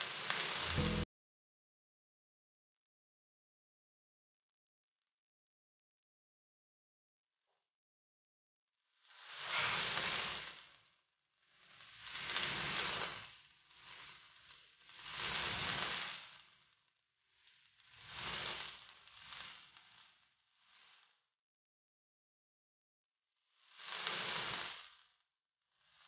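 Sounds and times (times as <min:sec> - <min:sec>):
chicken sizzling in a frying pan: 0:00.0 - 0:01.0, 0:08.8 - 0:21.3, 0:23.4 - 0:26.0.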